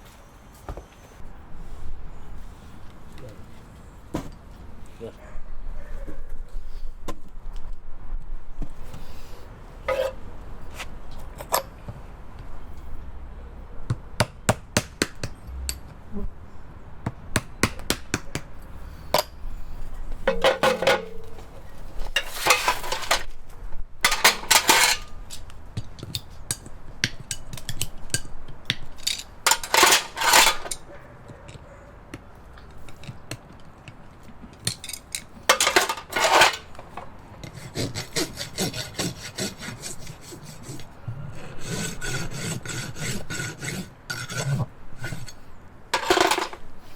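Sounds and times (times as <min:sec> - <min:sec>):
hammer striking metal: 0:20.3 - 0:21.4.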